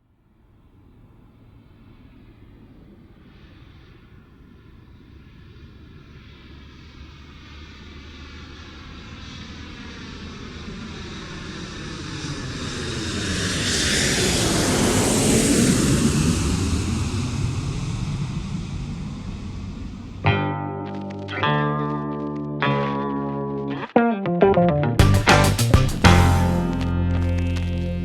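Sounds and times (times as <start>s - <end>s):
airplane flying past: 1.4s - 20.3s.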